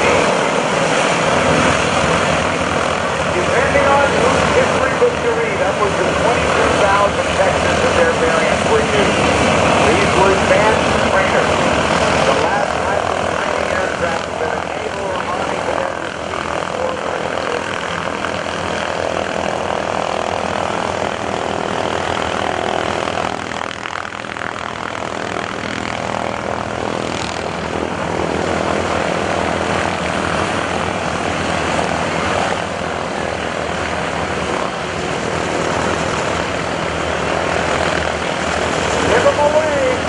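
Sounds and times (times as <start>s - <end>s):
radial aircraft engines running: 0.0s - 40.0s.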